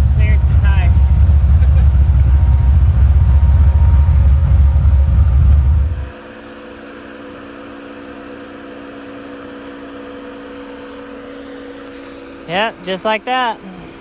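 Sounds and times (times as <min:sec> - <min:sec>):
heavy low rumble: 0:00.0 - 0:06.1
vehicle engine idling: 0:00.0 - 0:06.3.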